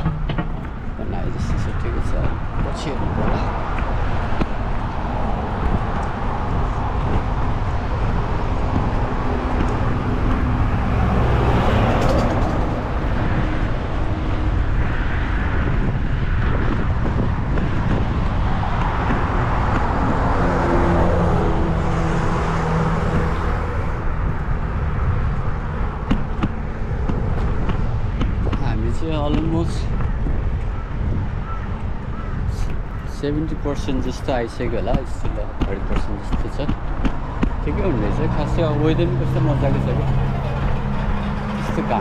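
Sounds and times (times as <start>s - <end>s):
road traffic passing: 0.0s - 42.0s
wind rumble on microphone: 0.0s - 42.0s.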